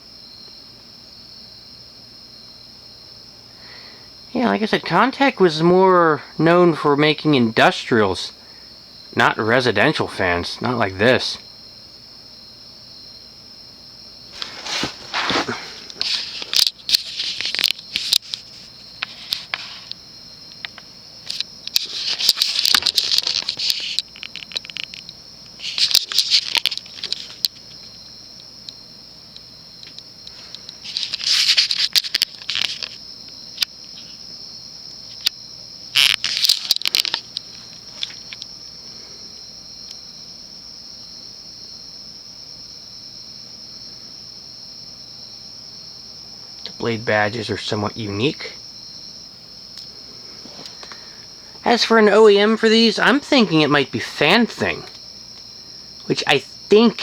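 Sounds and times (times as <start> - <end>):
crickets trilling: 0.0 - 57.0
scraping handling noise: 14.3 - 19.9, 21.3 - 25.0.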